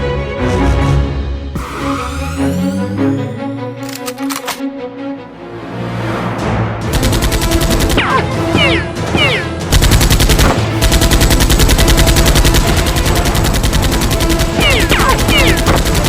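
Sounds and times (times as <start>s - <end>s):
background music: 0.0s - 16.0s
falling whistling tones: 1.6s - 3.9s
rapid automatic gunfire: 6.9s - 16.0s.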